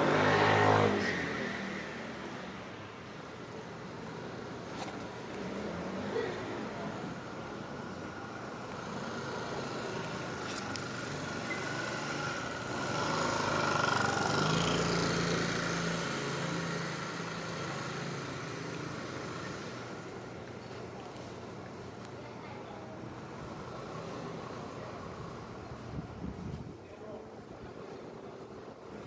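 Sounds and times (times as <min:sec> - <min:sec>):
motor vehicle passing: 0:00.0 - 0:02.6.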